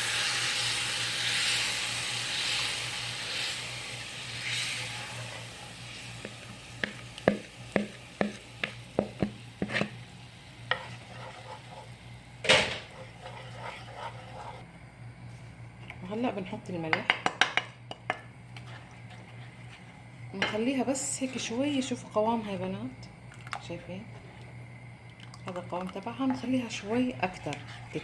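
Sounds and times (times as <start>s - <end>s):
pulp sizzling in hot oil: 0.0s - 14.6s
spoon tapping a pan: 6.2s - 9.4s.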